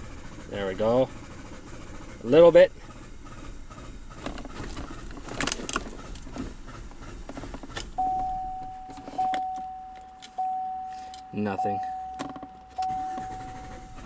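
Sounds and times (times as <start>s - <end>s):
truck engine running roughly: 0.0s - 14.0s
dashboard warning chime: 7.9s - 14.0s.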